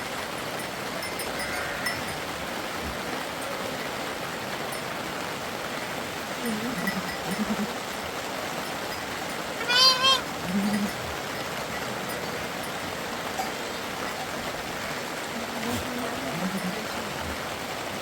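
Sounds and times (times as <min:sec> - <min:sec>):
rain and running water: 0:00.0 - 0:18.0
faint low calls: 0:02.9 - 0:08.6, 0:09.6 - 0:17.7.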